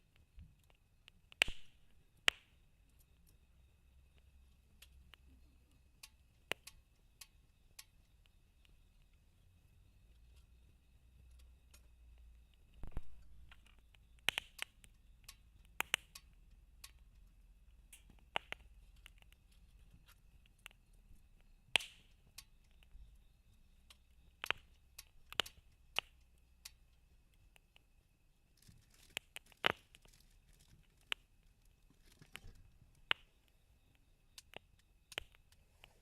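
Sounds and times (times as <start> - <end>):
campfire crackling and popping: 0.0 - 3.5, 4.1 - 9.4, 11.2 - 36.0.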